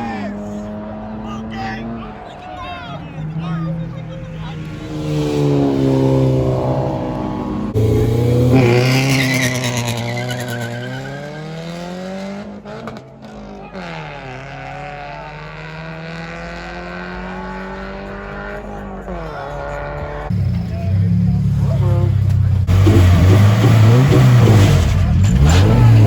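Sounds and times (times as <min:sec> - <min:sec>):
car engine accelerating hard: 0:00.0 - 0:26.0
tire squeal: 0:08.6 - 0:11.9.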